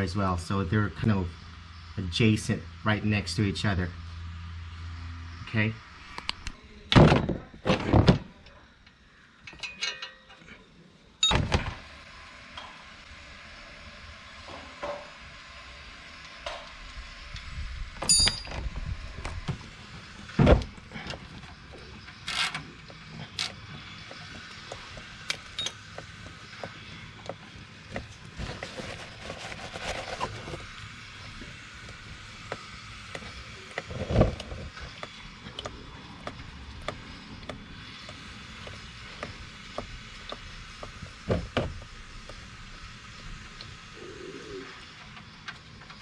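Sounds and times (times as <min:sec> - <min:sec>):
metal tools clicking and knocking: 0:09.4 - 0:10.5, 0:18.0 - 0:18.6, 0:25.3 - 0:25.8.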